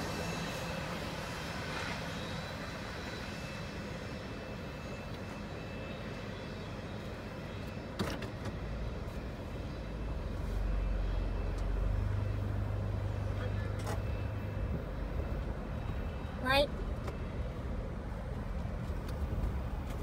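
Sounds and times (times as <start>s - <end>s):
freight train rumbling: 0.0s - 1.9s
car engine rumble: 7.9s - 20.0s.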